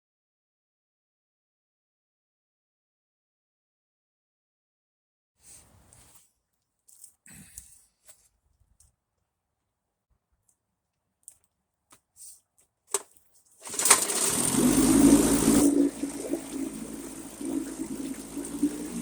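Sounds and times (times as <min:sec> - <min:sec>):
outboard motor running: 0:13.6 - 0:19.0.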